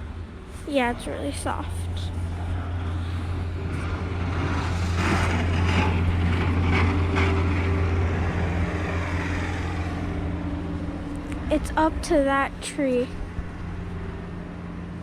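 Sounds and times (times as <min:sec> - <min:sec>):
car engine humming: 0:00.0 - 0:15.0
rushing noise: 0:00.0 - 0:15.0.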